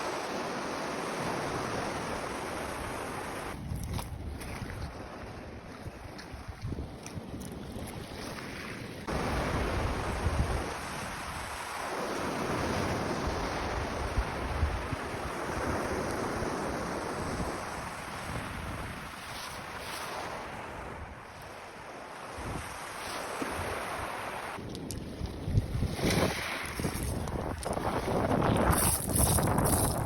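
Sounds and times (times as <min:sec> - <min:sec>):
waves breaking on rocky shore: 0:00.0 - 0:30.0
wind buffeting microphone: 0:24.6 - 0:30.0.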